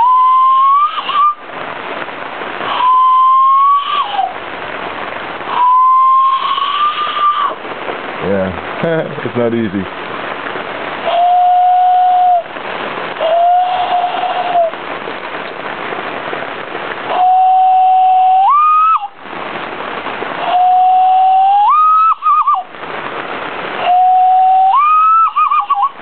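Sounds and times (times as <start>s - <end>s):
hand-cupped whistle: 0.0s - 1.4s, 2.8s - 4.3s, 5.6s - 7.6s, 17.2s - 19.1s, 20.5s - 22.7s, 23.8s - 26.0s
steady hiss: 0.0s - 26.0s.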